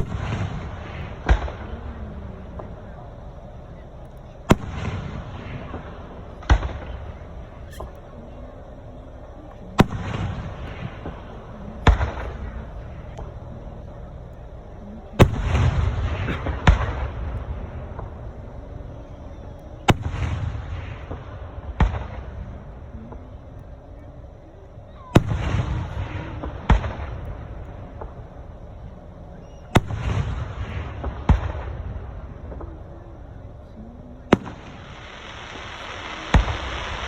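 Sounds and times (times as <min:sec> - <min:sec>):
fireworks bursting with booms: 0:00.0 - 0:37.0
rumbling crackling firework tails: 0:00.0 - 0:37.0.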